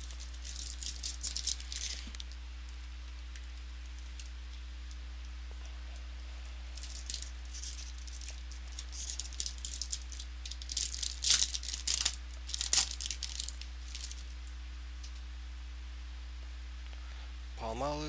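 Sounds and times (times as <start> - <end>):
foil wrapper crinkling and tearing: 0.0 - 2.4, 6.7 - 14.4.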